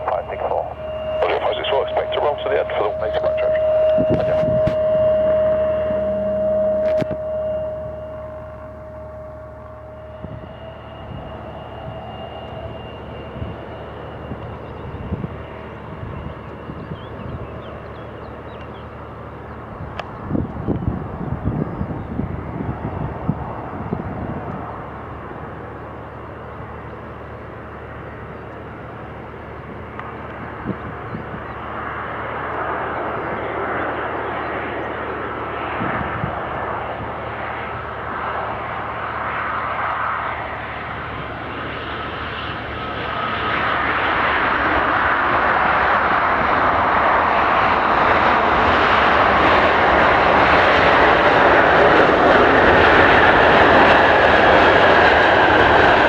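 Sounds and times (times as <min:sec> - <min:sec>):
wind buffeting microphone: 0:00.0 - 0:25.9, 0:28.9 - 0:33.9, 0:35.6 - 0:39.6
jet airliner engines roaring: 0:00.0 - 0:56.0.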